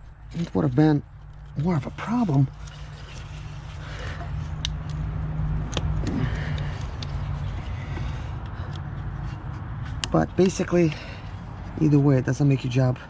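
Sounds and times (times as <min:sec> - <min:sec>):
low engine hum: 0:00.0 - 0:13.0
sharp clicks: 0:04.6 - 0:07.1.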